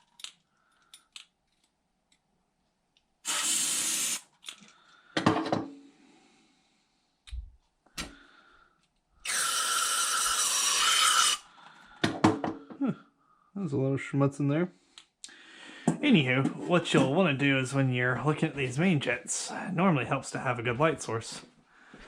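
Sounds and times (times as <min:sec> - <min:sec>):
pressurized spray hissing: 0:03.3 - 0:04.2.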